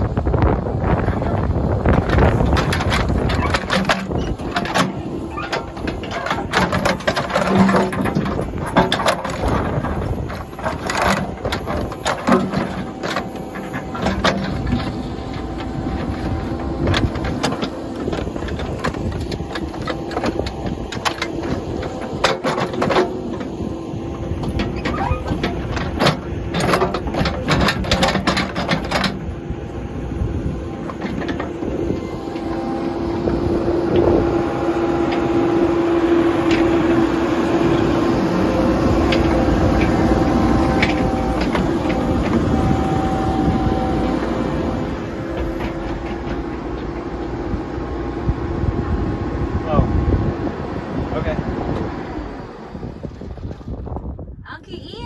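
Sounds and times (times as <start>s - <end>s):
tractor engine running: 0.0s - 55.0s
metallic clanks and knocks: 1.9s - 23.5s, 24.4s - 29.2s.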